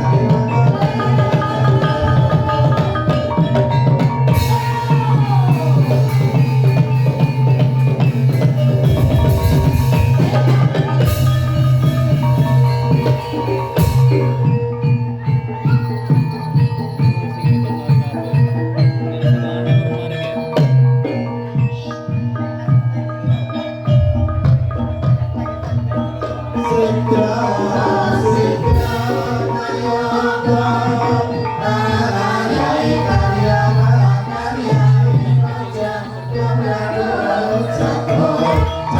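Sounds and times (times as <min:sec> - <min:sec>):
person singing: 0:00.0 - 0:07.4, 0:26.3 - 0:38.9
gamelan music: 0:00.0 - 0:38.9
hand drums: 0:00.0 - 0:38.9
mallet-struck metal instruments: 0:00.0 - 0:38.9.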